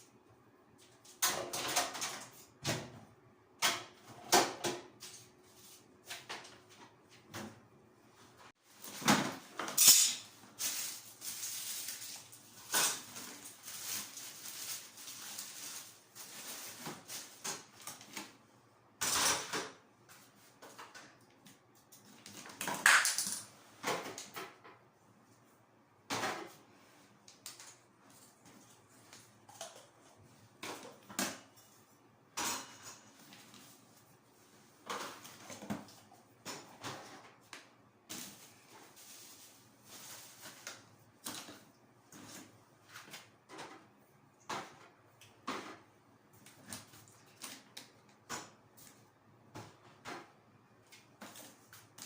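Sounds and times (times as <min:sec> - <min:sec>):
cleaning items knocking and scraping: 0:08.6 - 0:18.4, 0:28.0 - 0:50.4.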